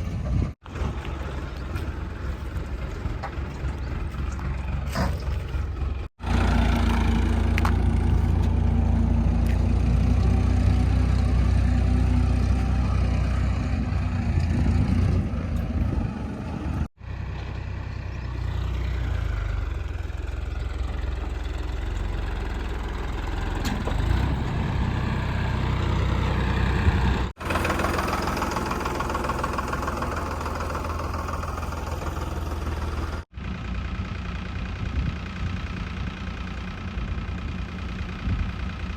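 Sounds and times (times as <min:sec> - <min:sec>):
heavy diesel engine rumbling: 0:00.0 - 0:38.9.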